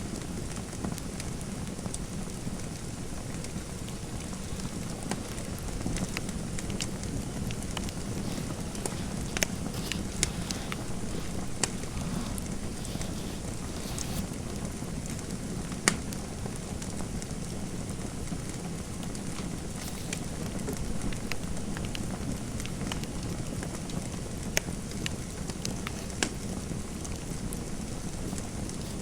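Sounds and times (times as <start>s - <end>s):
fire popping: 0.0s - 29.0s
low rush of fire: 1.5s - 14.2s.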